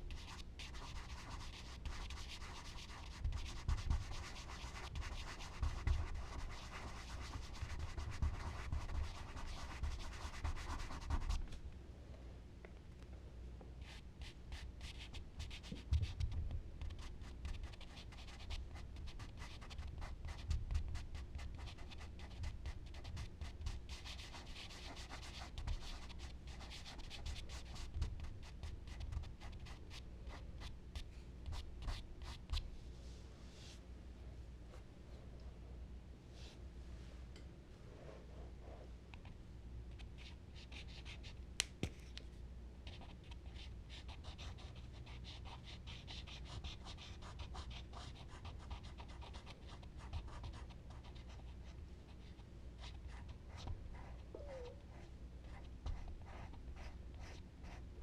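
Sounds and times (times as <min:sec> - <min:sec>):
charcoal scratching on paper: 0:00.1 - 0:11.4.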